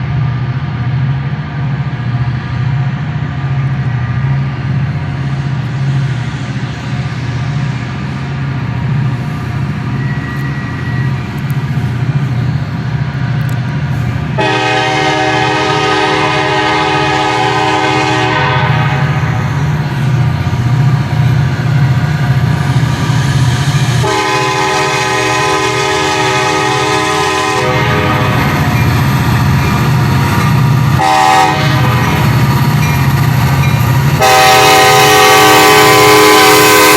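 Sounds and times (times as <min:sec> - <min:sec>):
locomotive air horn blasts: 0:14.4 - 0:19.4, 0:24.0 - 0:28.7, 0:31.0 - 0:32.3, 0:34.2 - 0:36.9.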